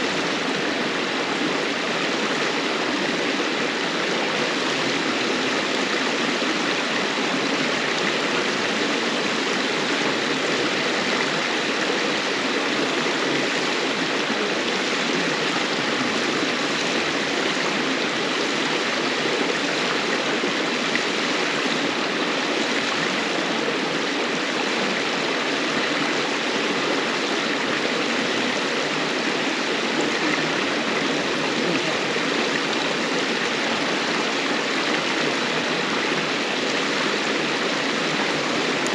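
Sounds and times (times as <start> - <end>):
river rushing over stones: 0.0 - 38.9.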